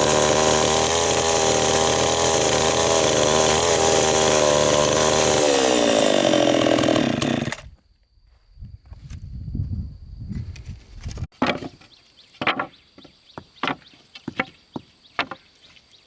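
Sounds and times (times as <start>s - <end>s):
chainsaw engine running: 0.0s - 7.6s.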